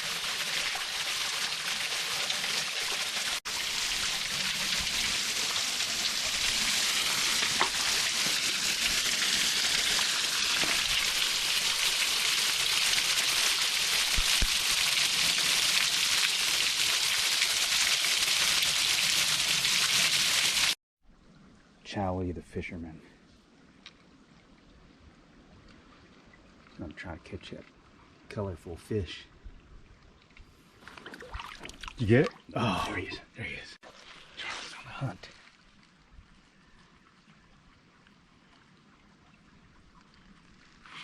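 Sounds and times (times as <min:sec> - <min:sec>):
small waterfall splashing: 0:00.0 - 0:20.8.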